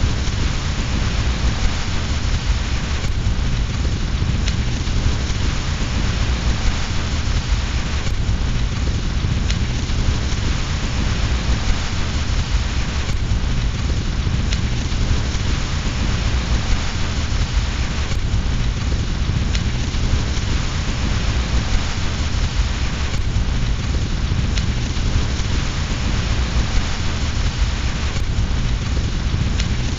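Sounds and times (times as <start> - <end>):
deep rumble: 0.0 - 29.9
fireplace fire: 0.0 - 29.9
steady rain: 0.0 - 29.9
faint sharp clicks: 9.4 - 9.7.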